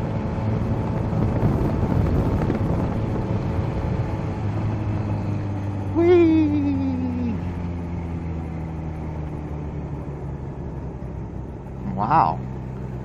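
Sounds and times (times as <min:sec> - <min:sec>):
motorcycle engine slowing to low revs: 0:00.0 - 0:13.0.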